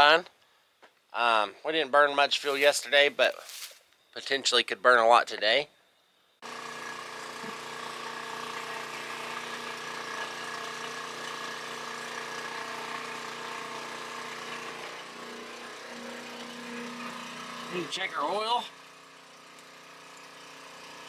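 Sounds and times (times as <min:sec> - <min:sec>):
electric fuel pump motor whirring: 0:06.4 - 0:21.0.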